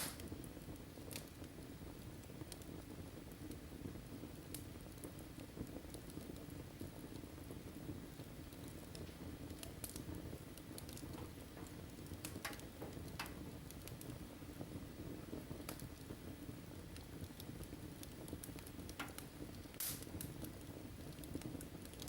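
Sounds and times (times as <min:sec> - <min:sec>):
low rumble of flames: 0:00.0 - 0:22.0
wood fire crackling: 0:00.0 - 0:22.0.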